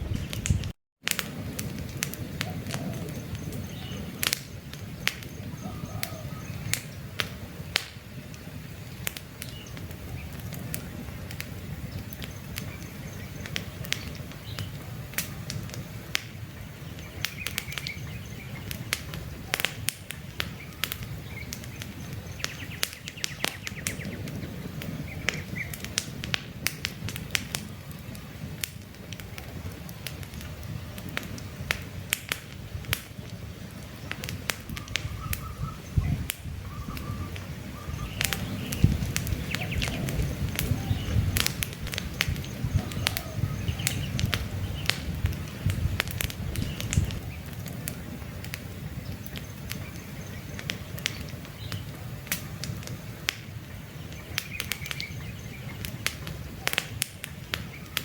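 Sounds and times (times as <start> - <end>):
campfire crackling: 0.0 - 58.0
bird chirps: 2.4 - 7.0, 16.6 - 19.6, 34.8 - 44.9.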